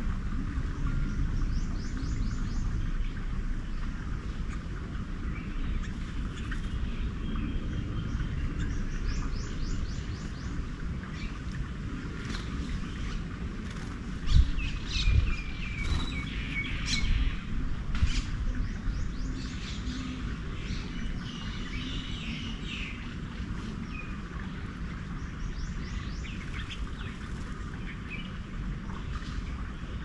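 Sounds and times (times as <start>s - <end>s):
garden birds chirping: 0.0s - 30.0s
low background rumble: 0.0s - 30.0s.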